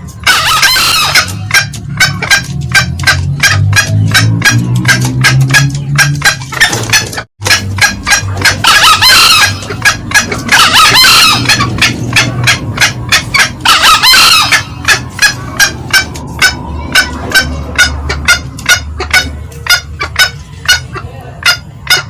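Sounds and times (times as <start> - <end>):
junglefowl sharp clucks: 0.0 - 22.0
junglefowl crowing calls: 0.1 - 22.0.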